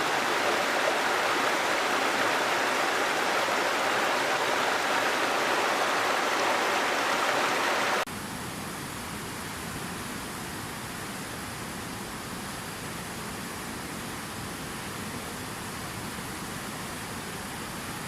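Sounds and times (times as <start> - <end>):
rushing water: 0.0 - 8.1.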